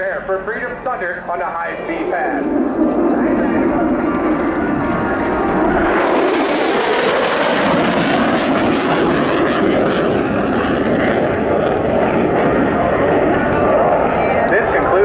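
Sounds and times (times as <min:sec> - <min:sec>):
jet passing at high speed: 0:00.0 - 0:15.0.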